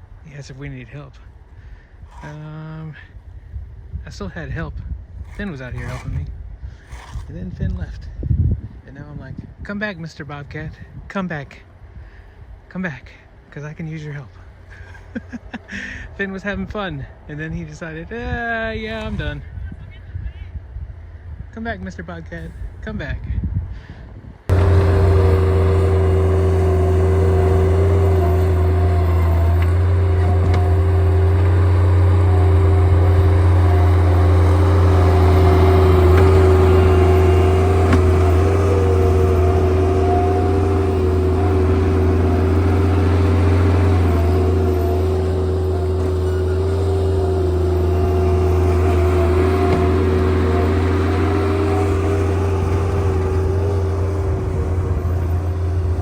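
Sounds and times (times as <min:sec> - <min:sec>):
engine running loudly: 0:24.5 - 0:56.0.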